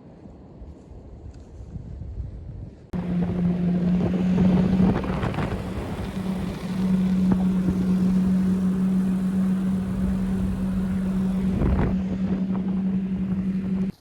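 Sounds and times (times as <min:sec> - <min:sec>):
wind on microphone: 0:00.1 - 0:14.0
snowmobile engine droning: 0:03.0 - 0:14.0.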